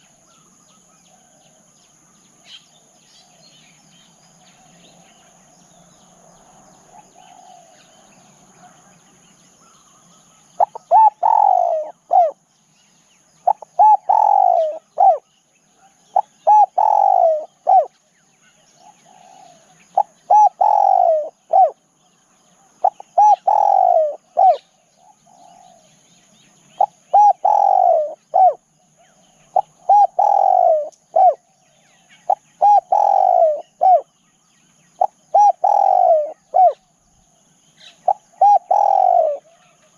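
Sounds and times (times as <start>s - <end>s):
dove cooing: 6.9s - 9.0s, 9.6s - 12.4s, 13.4s - 18.0s, 18.7s - 21.8s, 22.6s - 25.9s, 26.8s - 34.1s, 35.0s - 36.8s, 37.8s - 39.9s.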